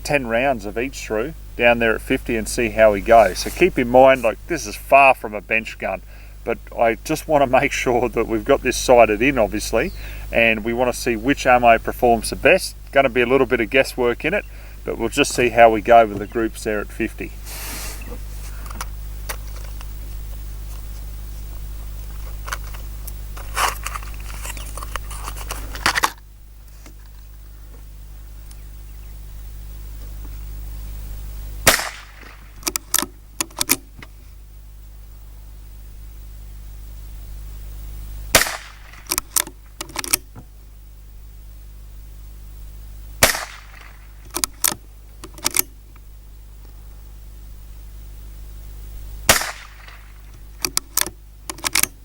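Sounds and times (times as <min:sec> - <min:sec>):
rifle shots: 0:31.6 - 0:32.6, 0:38.3 - 0:39.4, 0:43.2 - 0:44.3, 0:49.3 - 0:50.3
rifle lever metallic clicks: 0:50.6 - 0:51.9.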